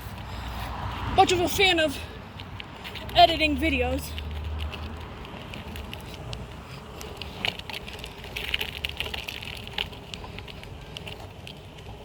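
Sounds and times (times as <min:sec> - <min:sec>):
bike tyres rumbling on pavement: 0:00.0 - 0:12.0
light rattles and clicks: 0:02.3 - 0:12.0.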